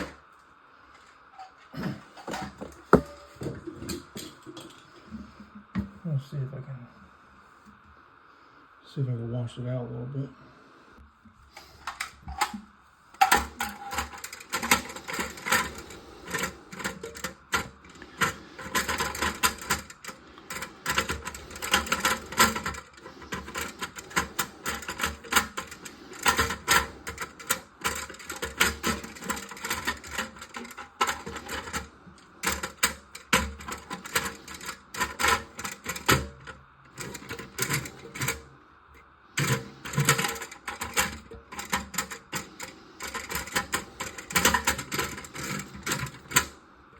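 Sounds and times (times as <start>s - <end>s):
plastic parts clicking and clattering: 2.2s - 4.8s, 11.6s - 38.5s, 39.4s - 46.6s.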